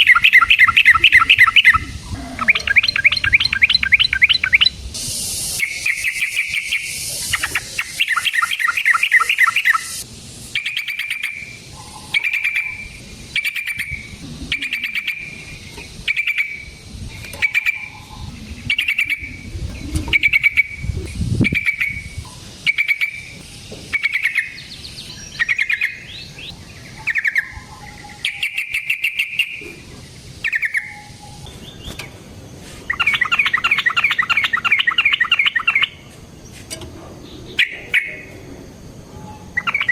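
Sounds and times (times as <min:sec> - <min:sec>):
bulbul singing: 0:00.0 - 0:32.2, 0:32.9 - 0:38.5, 0:39.2 - 0:39.9.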